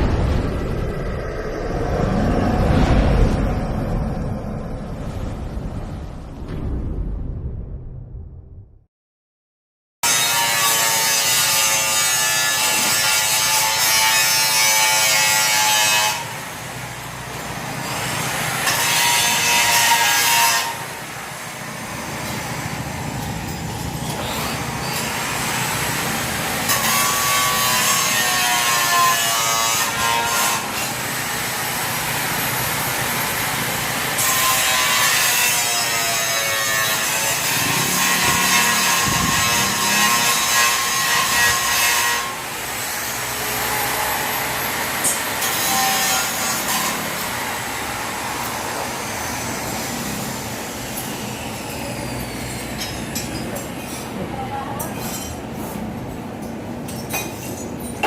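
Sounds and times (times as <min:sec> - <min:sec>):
power tool cutting whine: 0:30.6 - 0:52.9.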